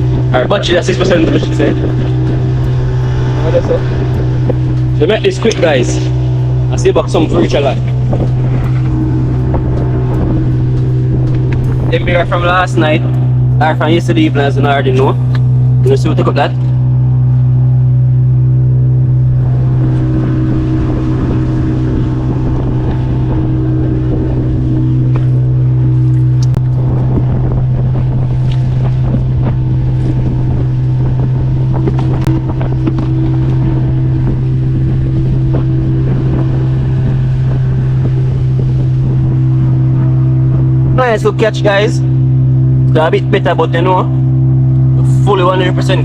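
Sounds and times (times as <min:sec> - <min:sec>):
outboard engine droning: 0:00.0 - 0:46.0.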